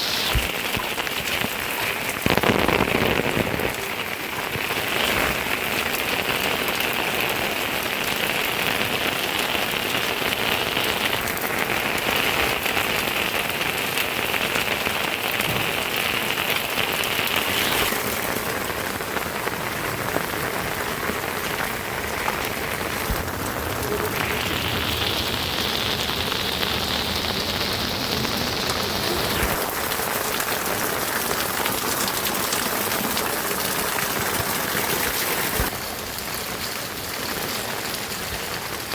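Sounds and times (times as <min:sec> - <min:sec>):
steady rain pouring: 0:00.0 - 0:38.9.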